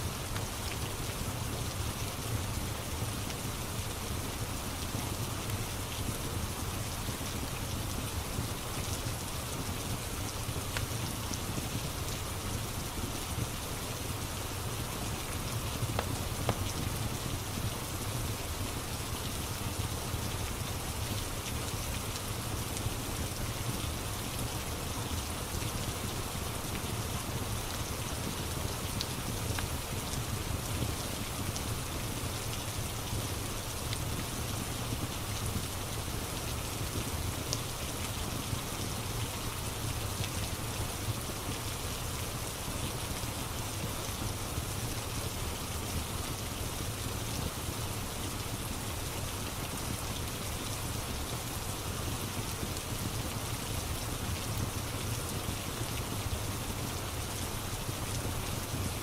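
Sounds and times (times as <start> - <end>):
steady rain falling: 0.0 - 59.0
log fire crackling: 9.0 - 19.5.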